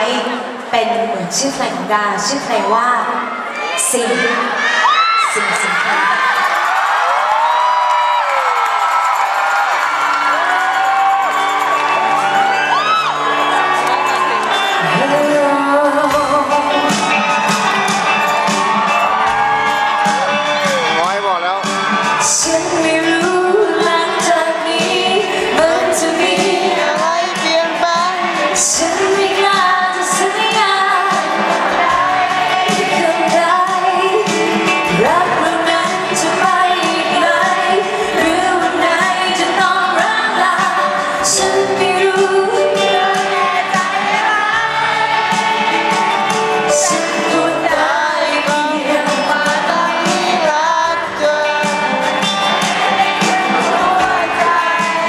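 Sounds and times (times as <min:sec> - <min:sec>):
woman singing pop song: 0:00.0 - 0:06.4, 0:14.8 - 0:17.4, 0:22.2 - 0:55.0
band playing: 0:05.1 - 0:55.0.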